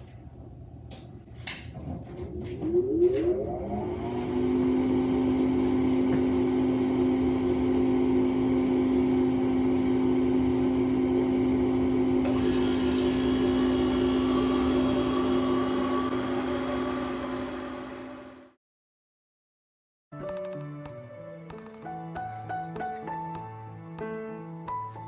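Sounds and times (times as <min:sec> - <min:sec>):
refrigerator compressor humming: 0:04.8 - 0:18.4.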